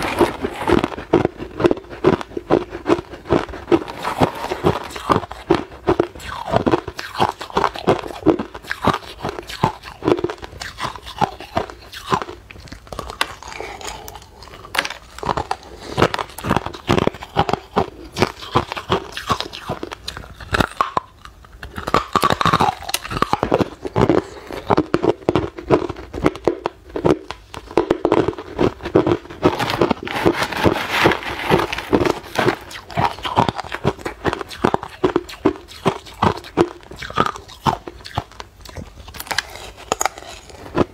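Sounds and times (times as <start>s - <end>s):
ice crunching while chewed: 0.0s - 40.9s.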